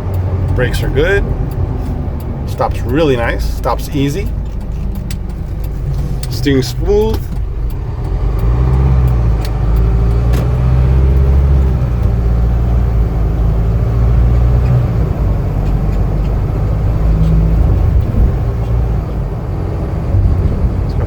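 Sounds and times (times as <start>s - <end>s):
diesel truck engine rumble: 0.0s - 21.0s
road noise: 0.0s - 21.0s
light clicks and rattles: 0.1s - 12.6s.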